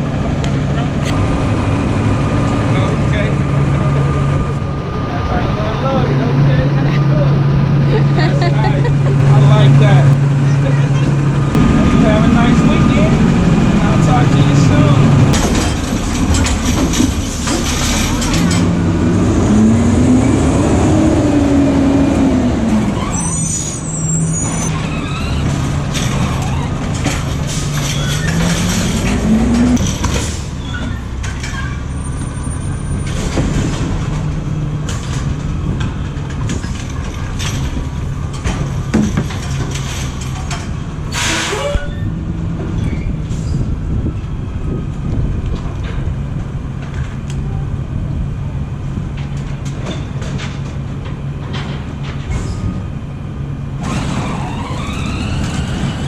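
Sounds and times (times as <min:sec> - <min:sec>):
truck engine running: 0:00.0 - 0:41.2.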